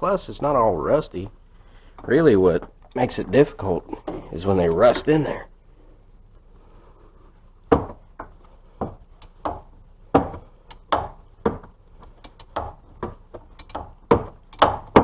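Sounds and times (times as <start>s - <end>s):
hand tools clicking on metal bolts: 10.7s - 15.0s.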